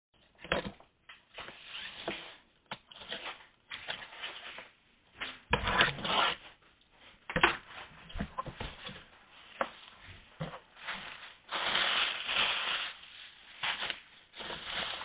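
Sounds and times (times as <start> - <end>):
cardboard parcel scraping and rustling: 3.1 - 6.6, 10.2 - 15.0.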